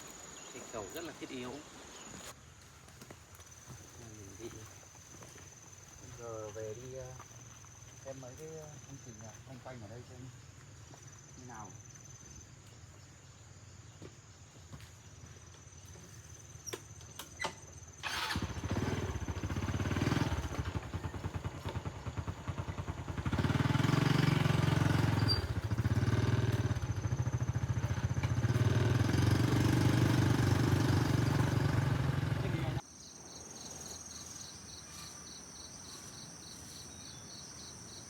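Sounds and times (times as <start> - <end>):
vehicle engine running: 18.1 - 32.8.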